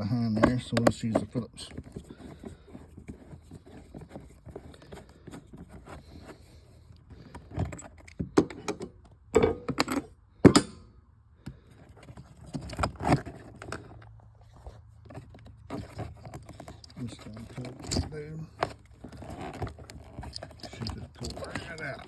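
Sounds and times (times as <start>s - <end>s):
screwdriver clicks and scrapes: 15.4s - 22.0s.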